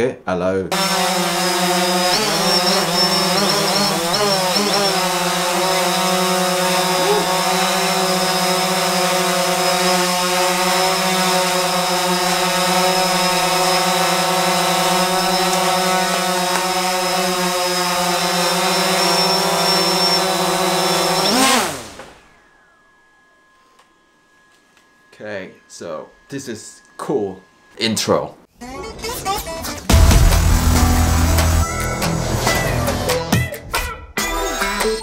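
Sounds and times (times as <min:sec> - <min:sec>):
drone propellers humming: 0:00.7 - 0:23.6, 0:29.9 - 0:33.3.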